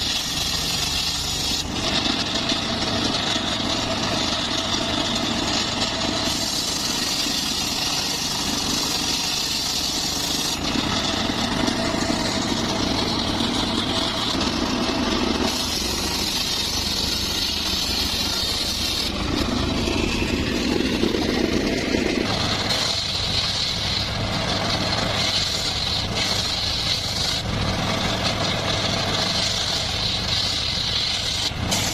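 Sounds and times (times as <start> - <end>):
circular saw engine running: 0.0 - 31.9
high hiss: 0.0 - 31.9.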